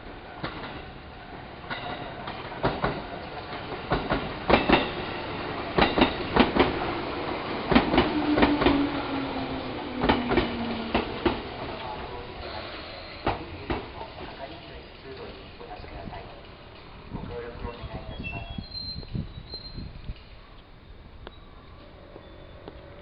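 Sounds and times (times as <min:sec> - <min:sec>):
train rumble: 0:00.0 - 0:20.4
wheels clacking over rail joints: 0:01.6 - 0:12.3.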